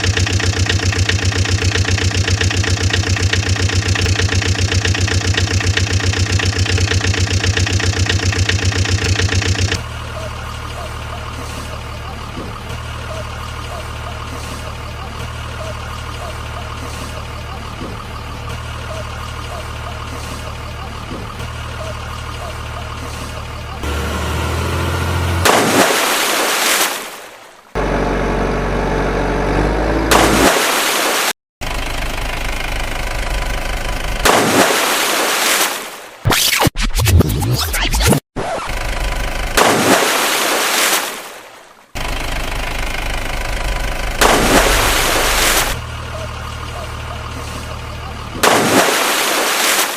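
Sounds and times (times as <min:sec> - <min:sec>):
engine idling with fast pulse: 0:00.0 - 0:25.8, 0:31.6 - 0:34.6, 0:38.6 - 0:39.7, 0:42.0 - 0:49.0
steady engine hum: 0:00.0 - 0:34.6, 0:41.6 - 0:49.5.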